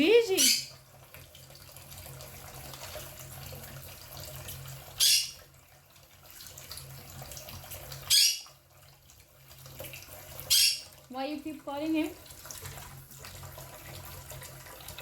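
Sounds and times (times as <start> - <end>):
tap running water: 0.0 - 15.0
parrot squawks: 0.3 - 0.7, 5.0 - 5.4, 8.1 - 8.6, 10.5 - 10.9.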